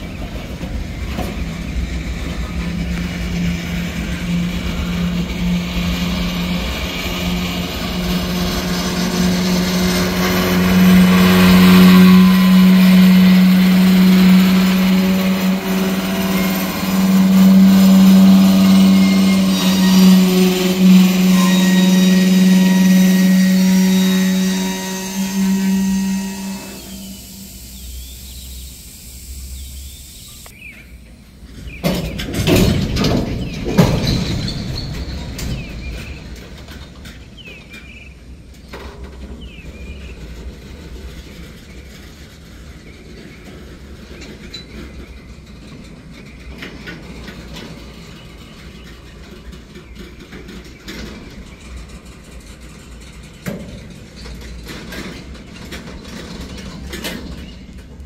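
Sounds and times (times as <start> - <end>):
train cars banging: 0.0 - 27.2, 31.5 - 58.0
train wheels rumbling on rail: 0.0 - 27.9, 30.6 - 58.0.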